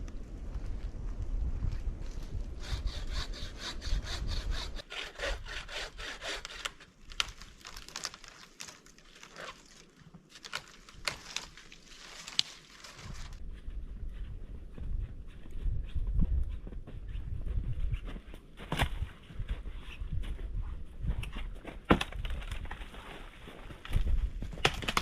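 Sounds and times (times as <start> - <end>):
hand saw cutting wood: 2.6 - 6.9
wood cracking: 6.4 - 13.4, 24.5 - 25.0.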